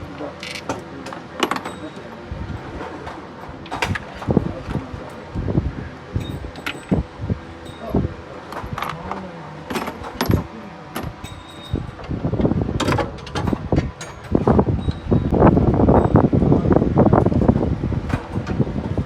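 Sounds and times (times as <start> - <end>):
metallic clinks and knocks: 0.4 - 4.5, 6.2 - 7.0, 9.7 - 12.1.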